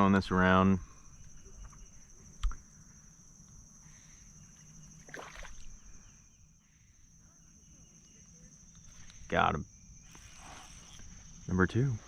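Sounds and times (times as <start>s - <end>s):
water splashing: 5.0s - 6.0s.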